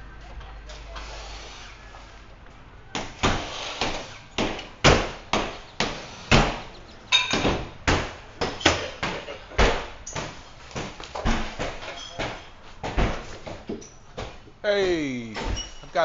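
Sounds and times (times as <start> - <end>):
sharp knocks: 3.0 - 14.4.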